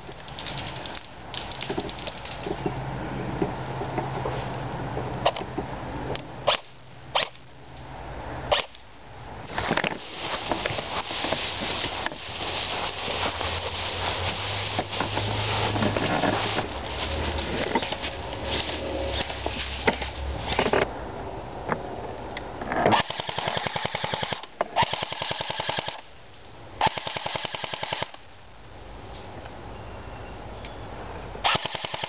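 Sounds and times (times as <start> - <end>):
rustling: 9.5 - 20.9
airsoft rifle firing bursts: 22.9 - 26.0, 26.8 - 28.2, 31.4 - 32.0.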